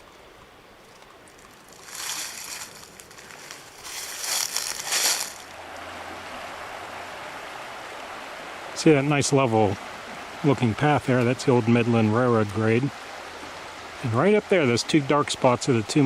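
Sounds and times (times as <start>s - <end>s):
flowing river water: 0.0s - 16.0s
rustling: 0.8s - 5.6s.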